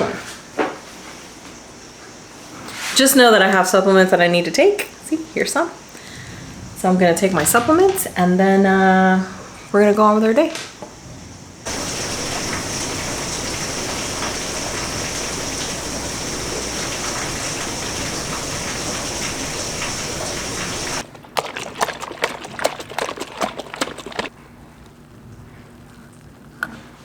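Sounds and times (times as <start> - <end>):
falling water rushing: 11.7 - 21.0.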